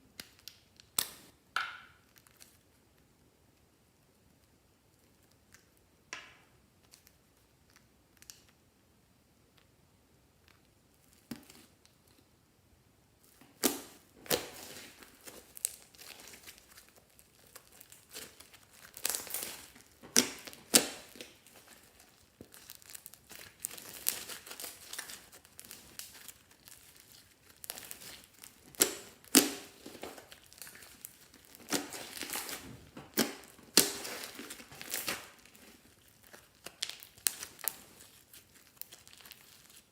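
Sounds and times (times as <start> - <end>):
plastic packaging crinkling: 13.2 - 39.9.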